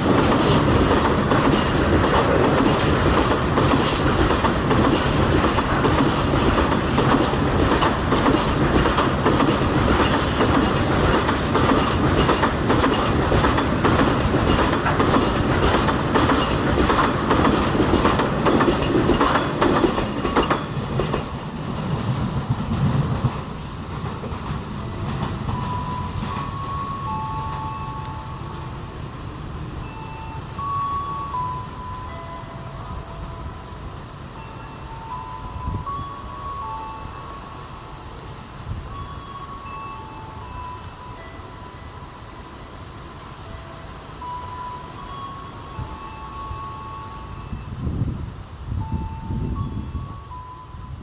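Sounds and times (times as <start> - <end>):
train wheels clattering over rail joints: 0.0 - 27.7.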